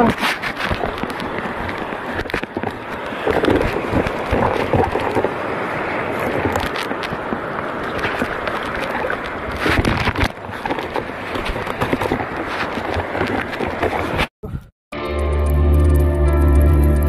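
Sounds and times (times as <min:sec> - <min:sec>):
knocks and crunches: 0:00.0 - 0:05.4, 0:09.5 - 0:14.3
wind on microphone: 0:00.0 - 0:14.7.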